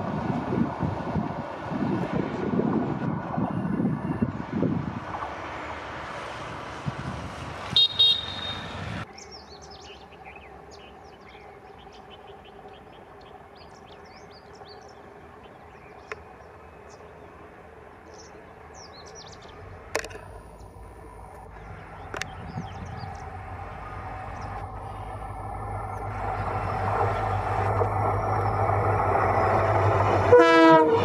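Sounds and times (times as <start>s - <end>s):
diesel locomotive drone: 0.0s - 31.0s
train rumbling: 0.0s - 31.0s
train horn blasts: 7.7s - 9.0s, 30.1s - 31.0s
birds chirping: 7.8s - 19.7s, 20.6s - 30.2s.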